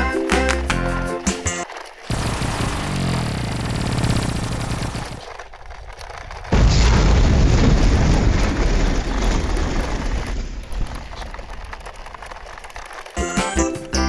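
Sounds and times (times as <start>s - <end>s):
explosion blast: 2.1s - 5.2s, 6.5s - 12.3s.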